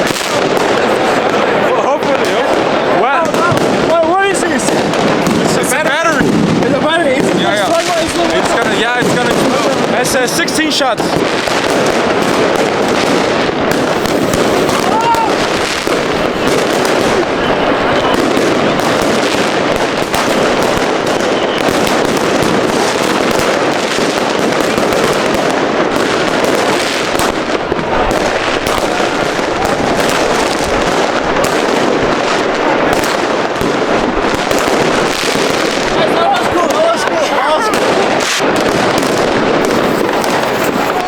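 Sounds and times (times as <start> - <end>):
fireworks and firecrackers banging: 0.0 - 41.0.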